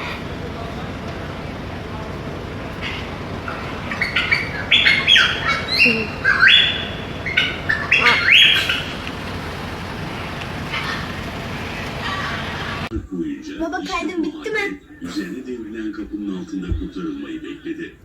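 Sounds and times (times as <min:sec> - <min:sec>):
parrot squawking and chirping: 0:02.7 - 0:12.9.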